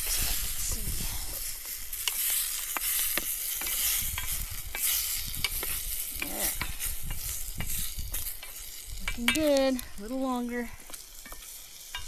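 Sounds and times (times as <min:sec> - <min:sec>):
meat sizzling in a pan: 0:00.0 - 0:12.0
metal clicking against a pan: 0:02.0 - 0:09.8, 0:10.9 - 0:12.0.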